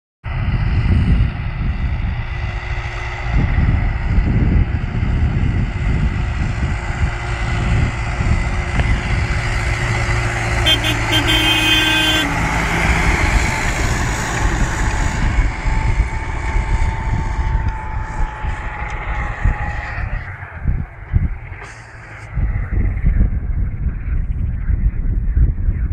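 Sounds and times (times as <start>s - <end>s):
tractor engine running: 2.2s - 24.8s
short horn-like tone: 10.6s - 12.4s.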